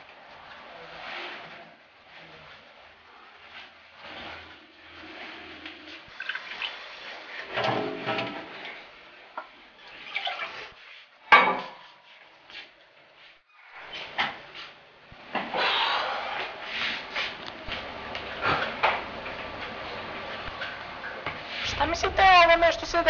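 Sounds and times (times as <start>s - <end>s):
dishes clattering: 11.3s - 11.8s.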